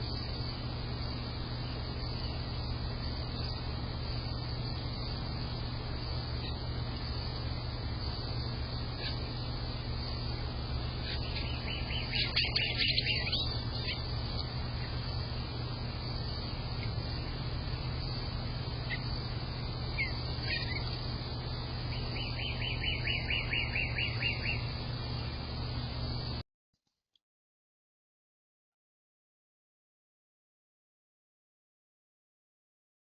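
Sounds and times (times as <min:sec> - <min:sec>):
songbird singing: 0:00.0 - 0:26.4
steady low hum: 0:00.0 - 0:26.4
bird chirps: 0:01.5 - 0:07.4, 0:08.0 - 0:15.3, 0:16.1 - 0:24.8.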